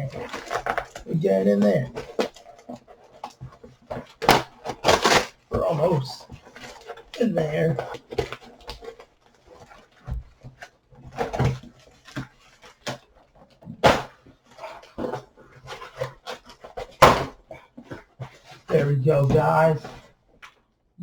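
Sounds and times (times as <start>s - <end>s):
tape and cardboard tearing: 1.7s - 13.1s.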